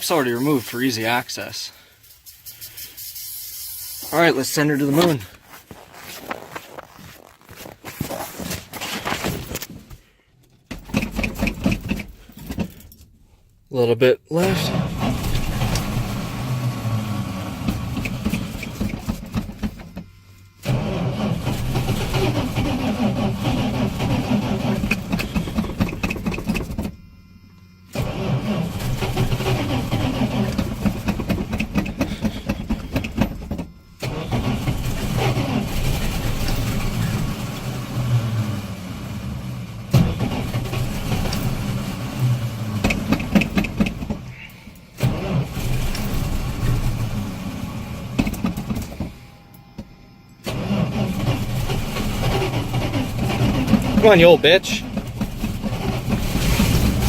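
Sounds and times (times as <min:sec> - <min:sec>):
engine cranking with starter: 0:10.4 - 0:13.2, 0:14.4 - 0:49.3, 0:50.4 - 0:57.0.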